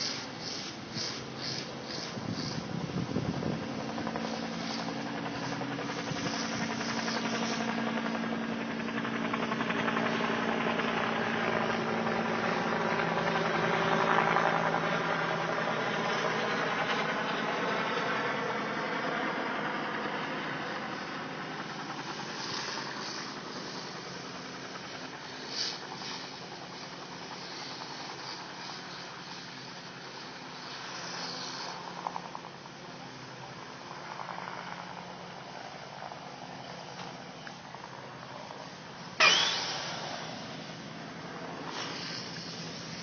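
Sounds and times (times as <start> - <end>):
broad rushing noise: 0.0 - 9.6, 20.0 - 43.0
engine running: 0.0 - 43.0.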